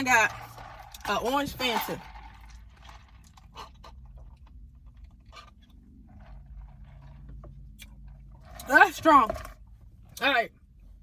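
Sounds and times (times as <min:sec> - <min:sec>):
person sipping and swallowing: 0:02.0 - 0:08.7.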